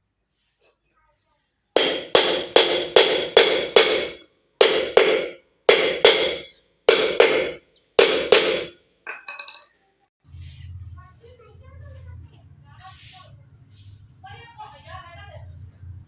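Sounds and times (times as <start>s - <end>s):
hammer striking metal: 1.8s - 9.6s.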